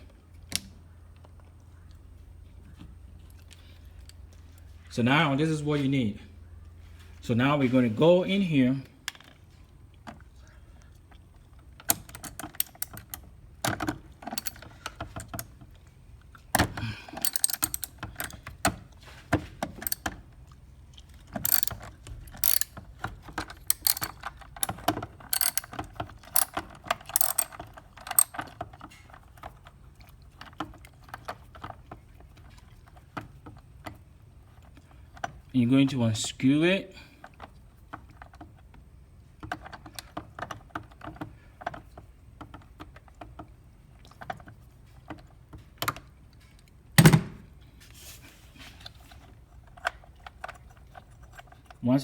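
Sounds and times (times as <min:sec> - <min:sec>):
ratchet wrench clicking: 0:11.9 - 0:13.2, 0:14.3 - 0:14.6, 0:17.2 - 0:18.4, 0:19.7 - 0:20.0, 0:21.4 - 0:22.8, 0:23.4 - 0:28.4
metal clinks: 0:14.3 - 0:14.7, 0:17.2 - 0:18.4, 0:21.4 - 0:22.8, 0:23.5 - 0:24.7, 0:25.3 - 0:28.4.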